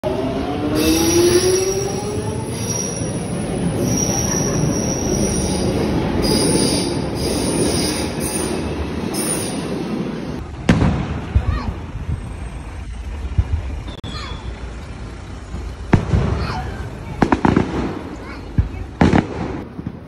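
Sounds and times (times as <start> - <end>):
train running on rails: 0.0 - 10.6, 11.2 - 19.0
high-pitched wheel squeal: 0.7 - 9.7.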